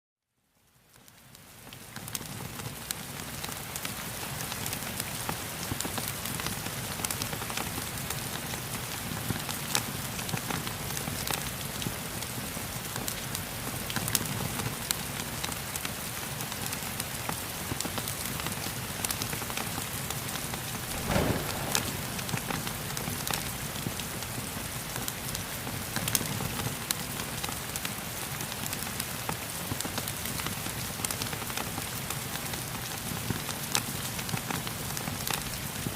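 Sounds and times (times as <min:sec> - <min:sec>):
rain hissing: 0:17.0 - 0:28.8
wood fire crackling and popping: 0:20.8 - 0:27.9.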